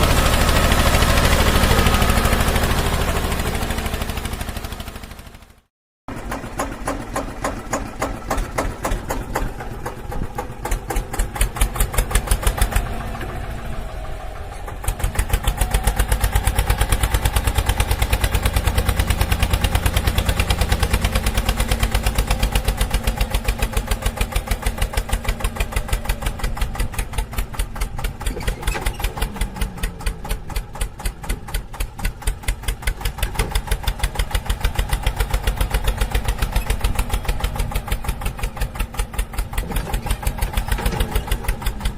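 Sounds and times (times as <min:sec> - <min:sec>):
tractor engine running: 0:00.0 - 0:41.9.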